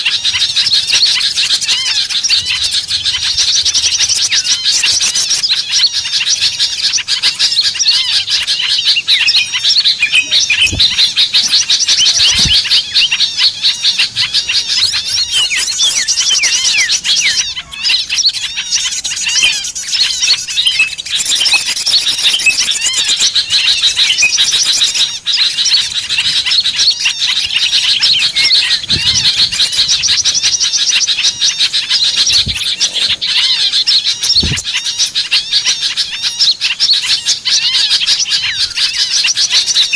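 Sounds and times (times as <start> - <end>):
small birds chattering: 0.0 - 39.9
soft low thumps: 10.6 - 11.2.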